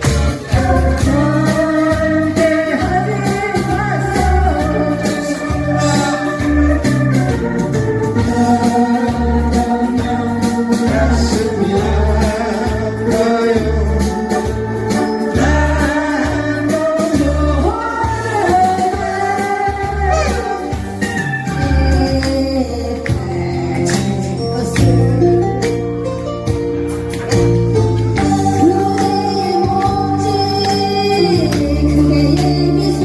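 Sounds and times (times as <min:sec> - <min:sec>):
electronic organ dance tune: 0:00.0 - 0:24.4.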